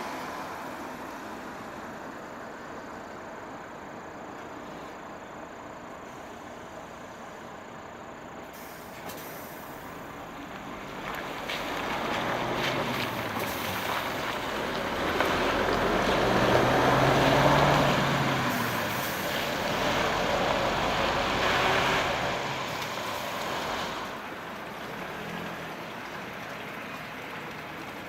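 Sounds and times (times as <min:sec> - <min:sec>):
coach driving past: 0:08.6 - 0:28.0.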